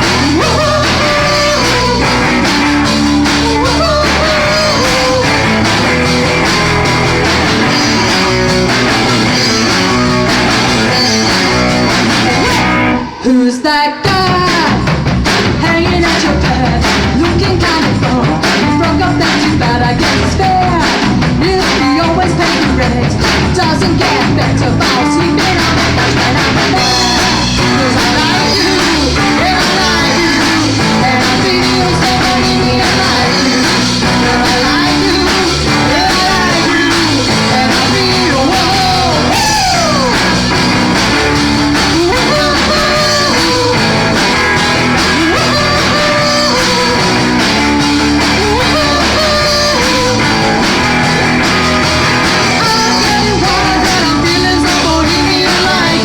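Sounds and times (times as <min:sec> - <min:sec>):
person singing: 0:00.0 - 0:56.0
rock band playing: 0:00.0 - 0:56.0.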